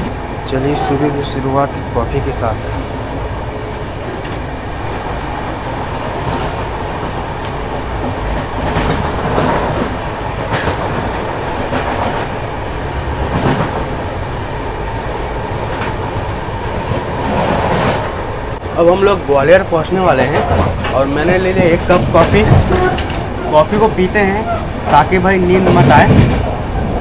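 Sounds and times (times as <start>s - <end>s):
train coach rumble: 0.0s - 27.0s.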